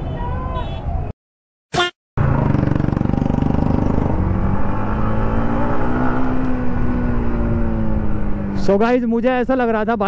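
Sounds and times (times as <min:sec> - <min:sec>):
motorcycle engine: 0:02.2 - 0:09.0.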